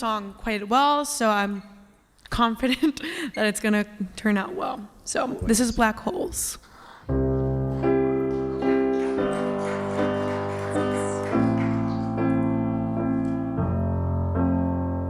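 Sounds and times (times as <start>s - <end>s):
slow piano chords: 7.1s - 15.0s.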